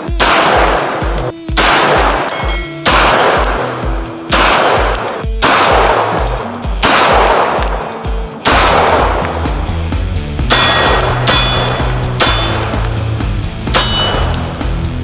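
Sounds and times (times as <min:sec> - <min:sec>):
pistol shots with long echo: 0:00.0 - 0:09.4, 0:10.5 - 0:12.8, 0:13.7 - 0:14.4
background music with steady beat: 0:00.0 - 0:15.0.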